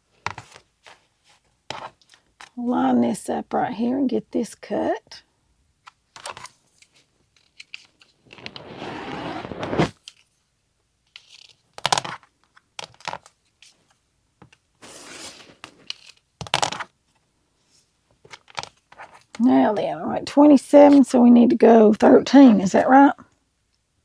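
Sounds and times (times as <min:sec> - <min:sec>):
fabric being cut: 0:08.3 - 0:09.9.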